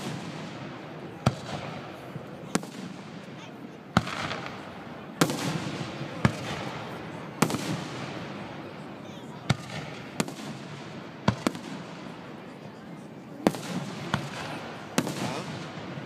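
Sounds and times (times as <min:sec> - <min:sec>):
fireworks bangs: 0:00.0 - 0:03.4, 0:04.0 - 0:08.7, 0:09.5 - 0:12.3, 0:13.4 - 0:16.0
fireworks crackling: 0:13.4 - 0:16.0.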